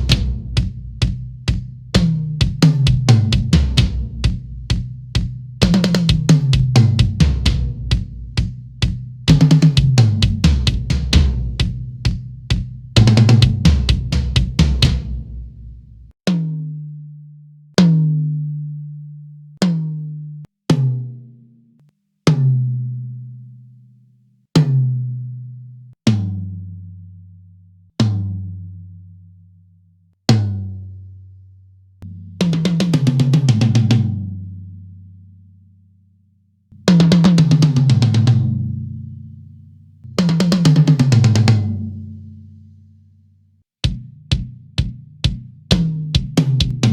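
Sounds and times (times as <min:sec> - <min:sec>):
tom drums struck: 0:00.0 - 0:15.7.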